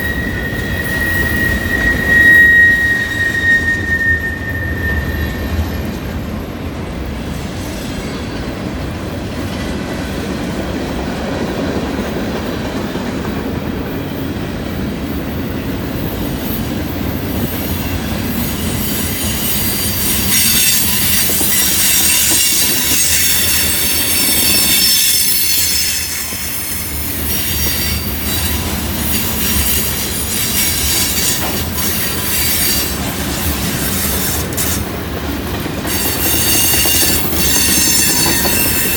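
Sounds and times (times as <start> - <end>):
wheel flanges squealing: 0.0 - 6.4, 17.4 - 34.9, 35.8 - 38.9
freight train rumbling past: 0.0 - 38.9.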